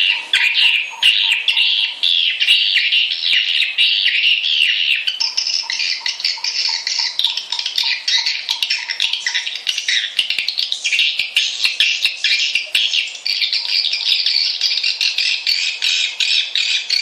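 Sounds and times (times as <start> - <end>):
swiftlets twittering chirps: 0.0 - 17.0
faint regular ticking: 5.1 - 15.0.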